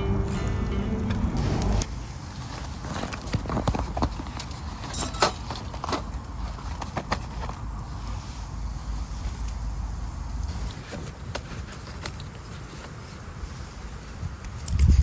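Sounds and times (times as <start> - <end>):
background music: 0.0 - 1.9
low steady rush of fire: 0.0 - 15.0.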